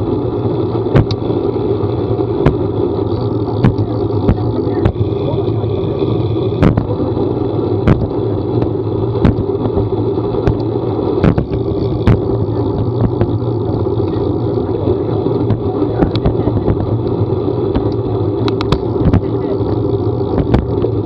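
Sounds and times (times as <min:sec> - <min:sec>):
motor vehicle driving: 0:00.0 - 0:21.0
sharp taps and knocks: 0:01.0 - 0:01.2, 0:02.4 - 0:02.7, 0:03.6 - 0:05.0, 0:06.6 - 0:06.9, 0:07.8 - 0:13.4, 0:17.7 - 0:19.3, 0:20.3 - 0:20.8.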